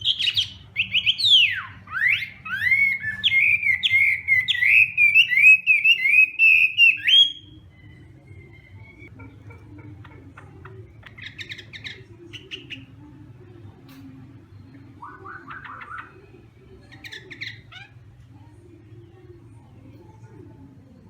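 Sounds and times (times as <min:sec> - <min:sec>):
bird singing rapid repeated notes: 0:00.0 - 0:09.1, 0:14.5 - 0:18.1.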